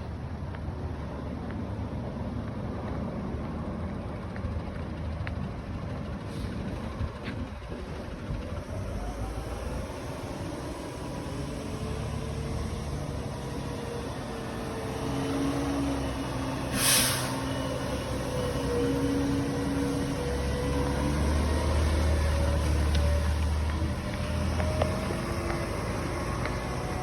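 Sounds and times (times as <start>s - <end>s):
truck diesel engine running: 2.6s - 27.0s
air hiss burst: 16.7s - 17.5s.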